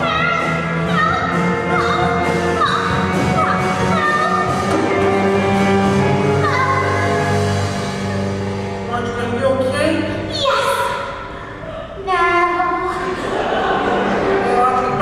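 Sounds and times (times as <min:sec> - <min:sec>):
band accompaniment: 0:00.0 - 0:09.6.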